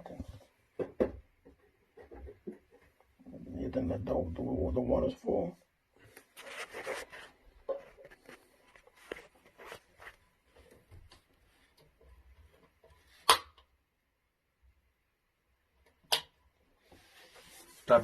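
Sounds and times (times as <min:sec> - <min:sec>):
faint handling taps and rustles: 0:00.0 - 0:03.2, 0:06.0 - 0:13.2.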